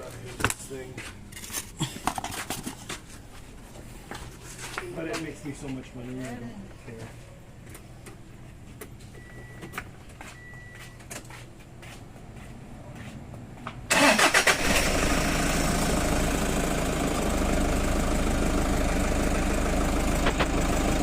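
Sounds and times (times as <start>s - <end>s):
engine starter cranking: 13.9s - 15.4s
engine idling: 13.9s - 21.0s.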